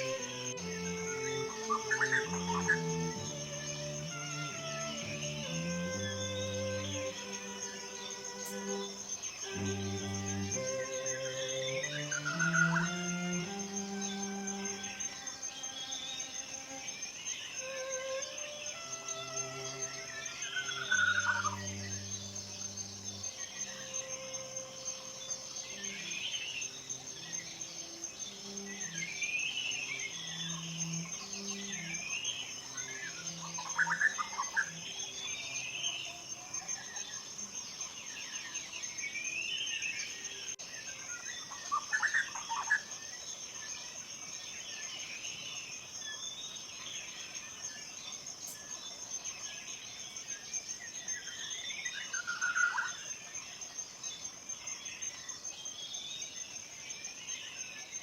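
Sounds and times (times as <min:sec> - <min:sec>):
soft low sustained notes: 0:00.0 - 0:17.0, 0:17.6 - 0:35.6
birds singing and calling: 0:00.0 - 0:58.0
high insect drone: 0:00.0 - 0:58.0.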